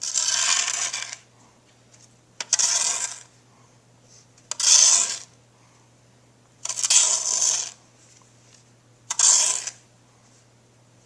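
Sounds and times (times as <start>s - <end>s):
snow shovel scraping snow: 0.0s - 1.2s, 2.5s - 3.3s, 4.6s - 5.3s, 6.7s - 7.8s, 9.1s - 9.8s.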